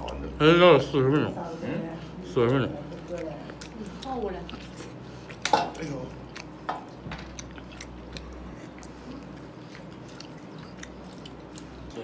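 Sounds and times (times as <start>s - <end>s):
low steady hum: 0.0s - 12.0s
man chewing: 2.3s - 12.0s.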